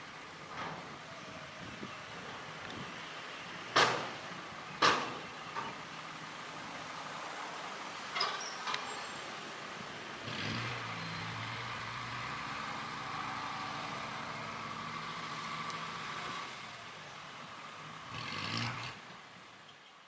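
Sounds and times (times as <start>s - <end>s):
diesel machinery engine running: 10.0s - 19.6s.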